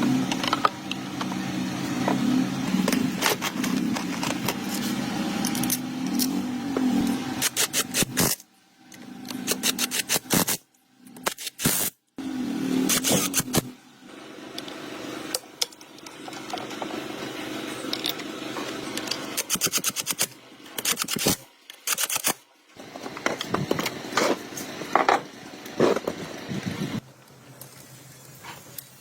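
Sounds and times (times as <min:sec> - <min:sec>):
metallic clicks and scrapes: 0:07.4 - 0:12.0, 0:17.7 - 0:22.4.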